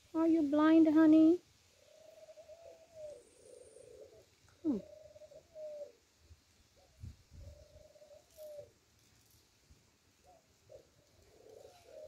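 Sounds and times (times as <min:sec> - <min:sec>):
soft drawn-out bird calls: 0:01.7 - 0:09.4, 0:10.2 - 0:12.0.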